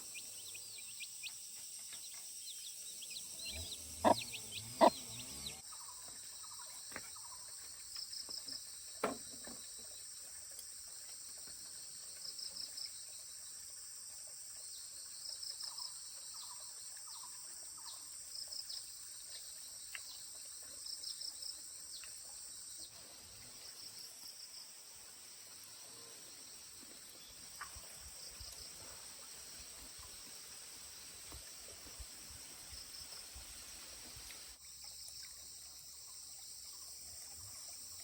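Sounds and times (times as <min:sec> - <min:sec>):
insect high-pitched trill: 0:00.0 - 0:06.6
insect quick chirps: 0:00.0 - 0:38.0.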